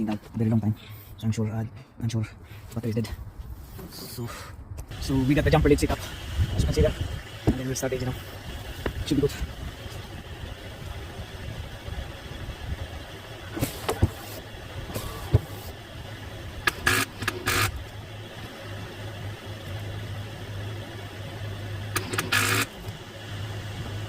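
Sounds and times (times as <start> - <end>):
steady low hum: 0.0 - 24.0
engine failing to start: 16.6 - 17.8, 21.9 - 22.9
starter clicks: 16.6 - 18.0, 21.9 - 23.0.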